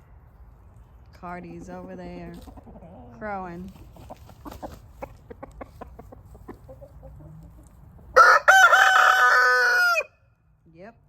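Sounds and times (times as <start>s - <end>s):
chicken clucking: 1.5s - 8.3s
rooster crowing: 8.2s - 10.2s.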